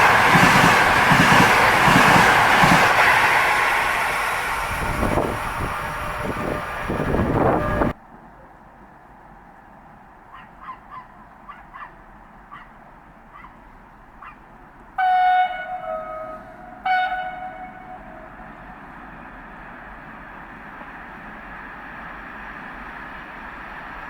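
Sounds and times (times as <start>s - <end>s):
approaching train noise: 0.0s - 24.0s
train horn blasts: 4.7s - 8.0s, 15.0s - 18.8s.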